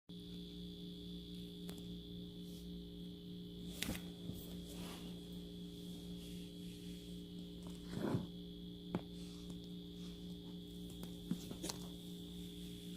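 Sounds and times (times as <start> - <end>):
electrical hum: 0.1 - 12.9
faint high-pitched whine: 0.1 - 12.9.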